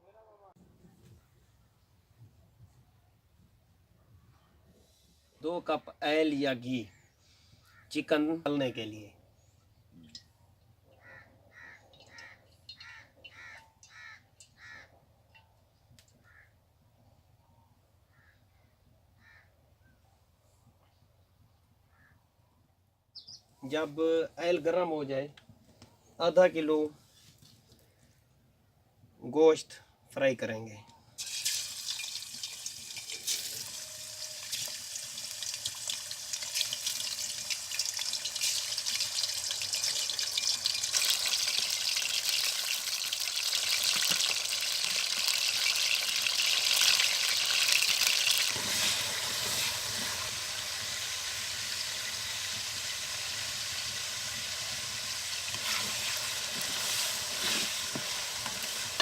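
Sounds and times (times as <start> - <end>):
chicken sizzling in hot oil: 31.2 - 59.0.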